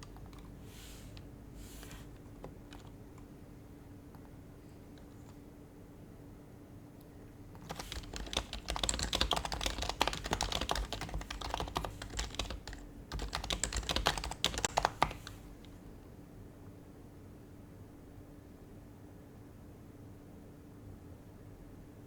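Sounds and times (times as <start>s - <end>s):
soft keyboard typing: 0.0s - 3.4s, 4.1s - 5.5s, 7.5s - 15.8s.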